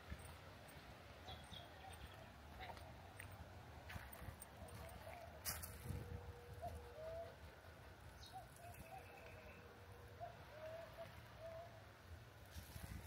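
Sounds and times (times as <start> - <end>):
faint hum: 0.0 - 13.0
faint bird calls: 6.1 - 11.9.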